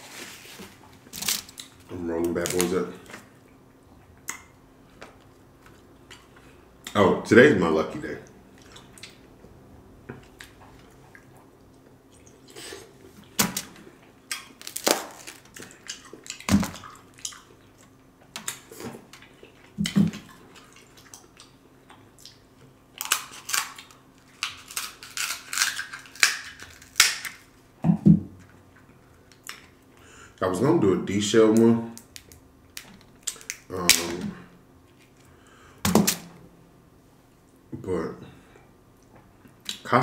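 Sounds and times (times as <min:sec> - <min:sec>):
wet chewing and smacking: 0:14.0 - 0:27.4
crab shell cracking: 0:23.0 - 0:27.5.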